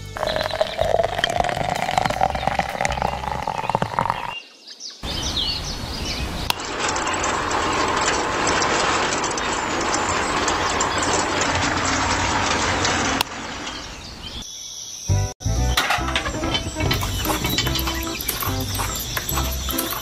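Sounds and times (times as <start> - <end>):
water trickling into metal can: 0.2 - 4.3.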